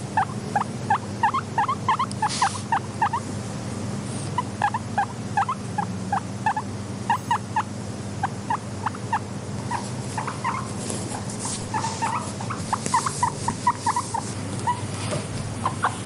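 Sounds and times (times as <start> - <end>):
guinea pigs squeaking: 0.0 - 3.3, 4.3 - 16.0
steady low hum: 0.0 - 16.0
faint rustling: 9.6 - 15.9.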